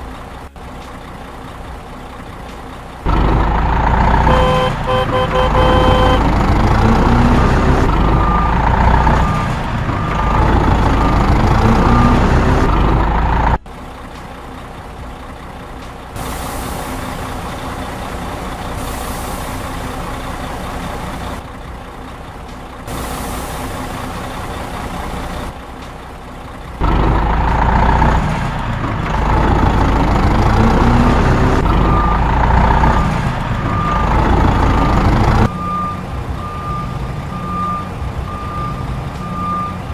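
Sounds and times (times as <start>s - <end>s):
heavy truck engine running: 0.0s - 39.9s
reversing alarm beeping: 4.2s - 6.3s, 6.9s - 12.4s, 30.7s - 39.9s
long air hisses: 18.8s - 20.1s, 22.9s - 24.0s.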